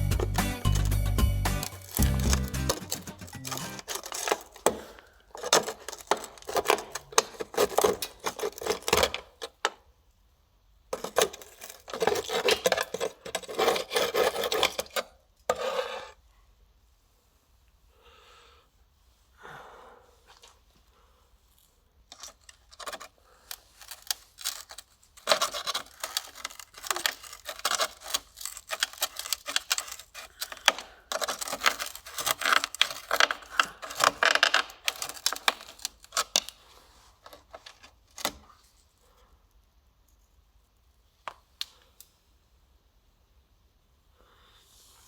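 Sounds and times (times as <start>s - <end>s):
small tools clicking and scraping: 0.0s - 9.8s, 11.0s - 16.2s, 22.0s - 38.7s.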